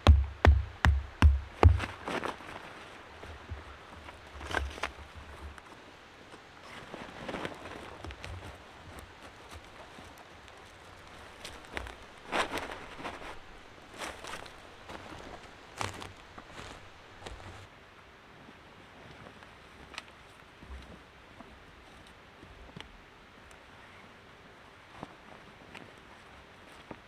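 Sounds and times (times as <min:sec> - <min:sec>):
rustling and crunching: 0:00.0 - 0:05.6, 0:06.8 - 0:17.7.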